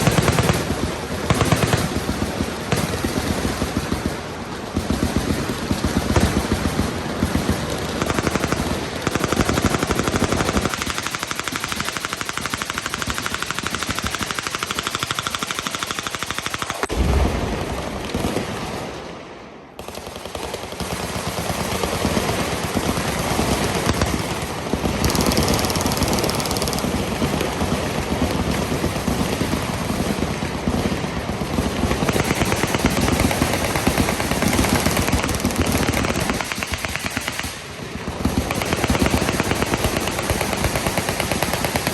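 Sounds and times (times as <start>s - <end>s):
machine guns firing: 0.0s - 19.2s, 19.8s - 41.9s
deep boom: 16.9s - 18.6s.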